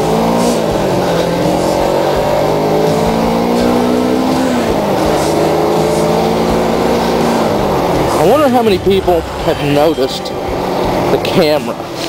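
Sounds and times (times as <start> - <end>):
motorcycle engine while riding: 0.0 - 12.0
wind and road noise: 0.0 - 12.0.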